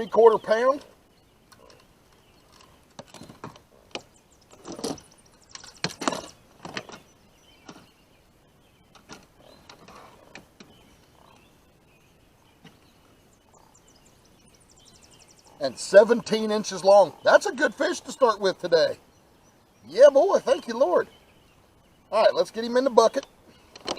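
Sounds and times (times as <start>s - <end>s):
handling knocks clicks and scrapes: 1.5s - 8.0s, 8.9s - 10.9s, 23.1s - 23.9s.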